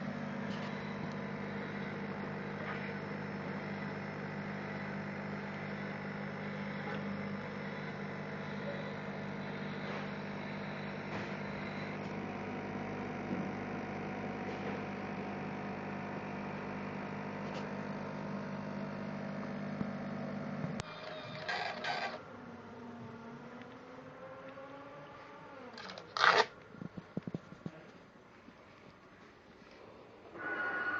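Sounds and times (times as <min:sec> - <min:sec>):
welding machine humming: 0:00.0 - 0:22.2.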